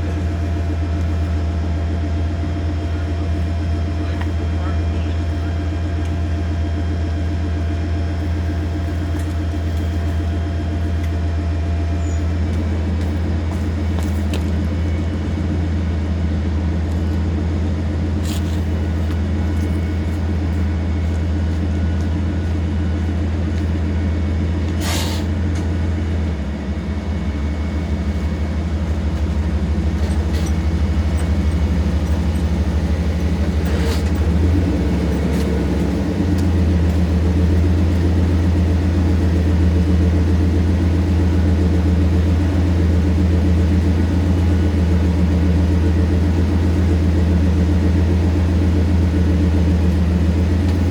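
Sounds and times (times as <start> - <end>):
truck engine humming: 0.0 - 50.9
short hiss: 24.8 - 25.4.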